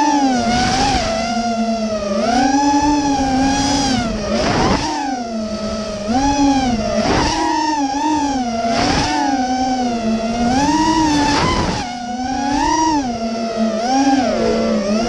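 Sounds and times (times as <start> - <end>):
drone motors whining: 0.0 - 15.0
wind noise rushes: 0.4 - 7.4, 9.8 - 13.1.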